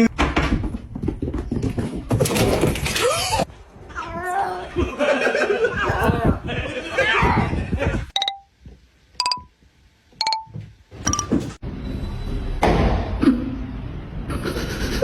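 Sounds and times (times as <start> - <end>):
short pitched beeps: 8.2 - 8.5, 9.2 - 9.5, 10.2 - 10.5.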